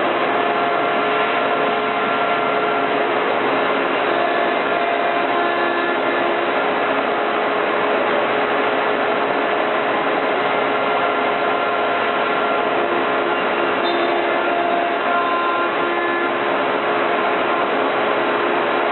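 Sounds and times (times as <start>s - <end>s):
router spindle whine: 0.0s - 18.9s.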